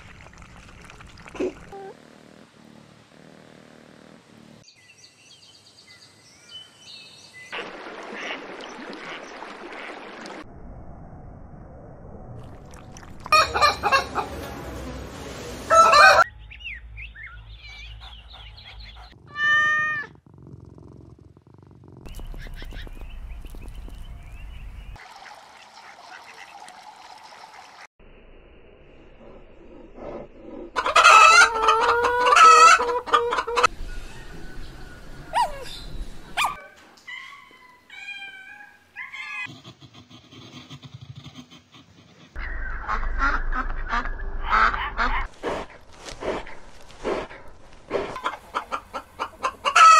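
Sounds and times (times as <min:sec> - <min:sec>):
chickens clucking and squawking: 0:13.3 - 0:14.4, 0:30.8 - 0:35.8, 0:48.0 - 0:49.9.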